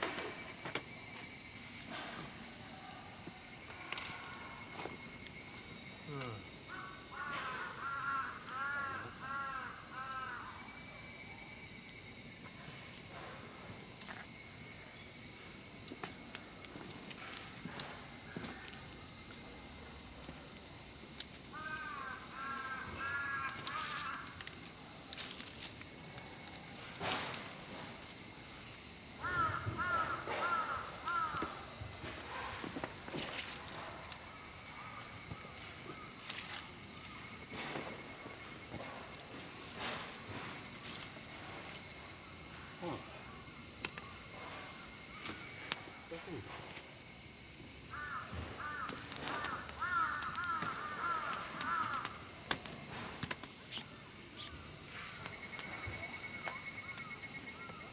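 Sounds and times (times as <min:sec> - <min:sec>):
high-pitched insect drone: 0:00.0 - 0:57.9
crow cawing: 0:06.7 - 0:10.7, 0:21.5 - 0:24.4, 0:29.2 - 0:31.8, 0:47.9 - 0:52.3.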